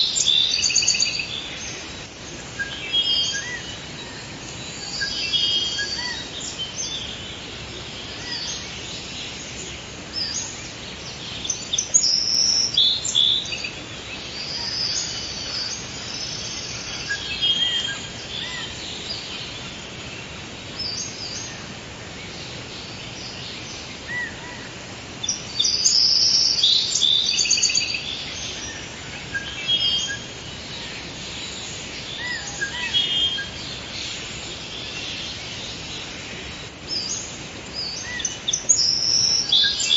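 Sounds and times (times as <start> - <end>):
birds chirping and trilling: 0.0 - 39.9
steady background hiss: 0.0 - 39.9.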